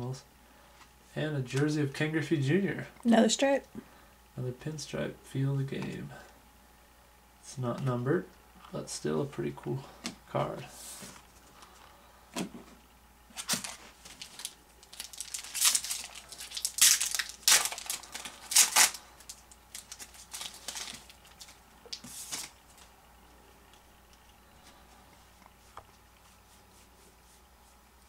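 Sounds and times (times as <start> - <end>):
wrapper tearing and crinkling: 13.3 - 22.6.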